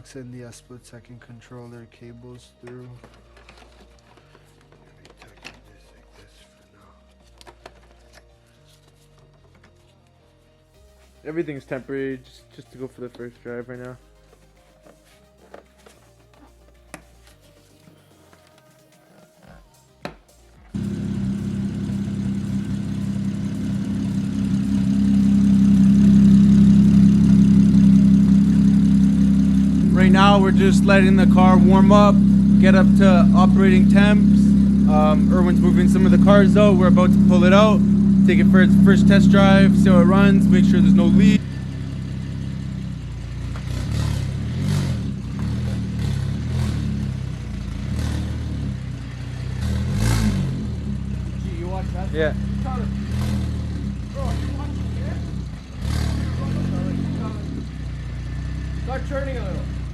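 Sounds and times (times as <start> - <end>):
car engine idling: 20.7 - 59.9.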